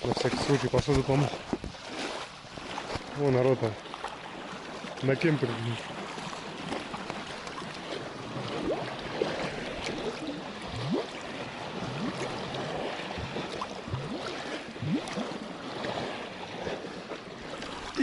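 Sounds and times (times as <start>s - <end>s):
shallow water lapping: 0.0s - 18.0s
bottle glugging underwater: 8.4s - 15.4s.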